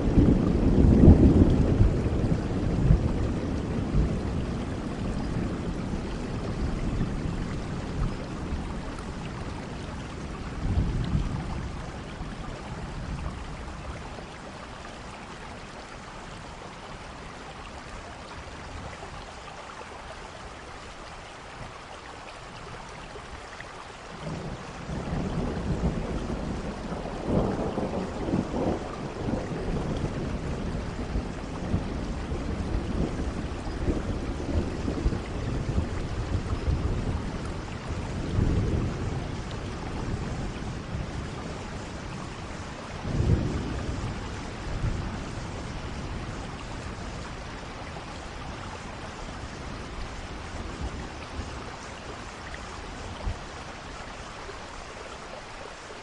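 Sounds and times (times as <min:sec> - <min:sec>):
thunder rumbling: 0:00.0 - 0:14.7, 0:24.1 - 0:53.5
heavy rain: 0:00.0 - 0:56.0.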